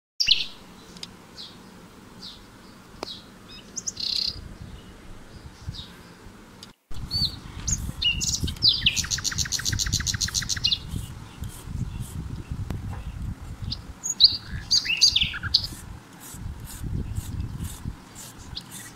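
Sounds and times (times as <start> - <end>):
fast bird trill: 0.2 - 0.6, 3.5 - 4.4, 6.9 - 12.2, 13.6 - 18.9
birds chirping and calling: 0.2 - 6.3, 6.9 - 18.9.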